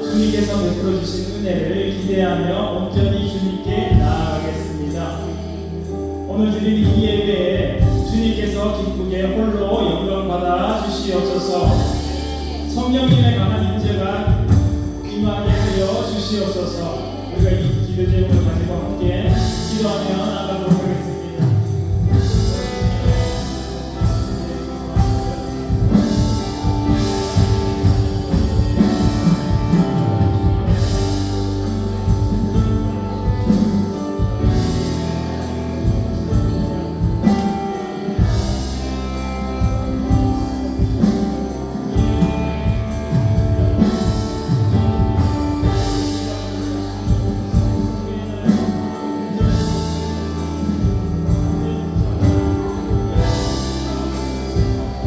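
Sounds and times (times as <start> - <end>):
bass guitar: 0.0 - 55.0
keyboards and synthesizer chords: 0.0 - 55.0
electric guitar: 10.7 - 55.0
drum kit hits: 17.4 - 55.0.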